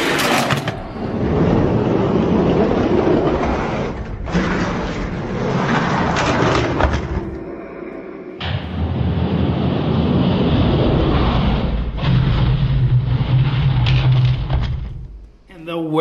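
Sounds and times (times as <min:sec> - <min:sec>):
rumbling engine roar: 0:08.4 - 0:15.2.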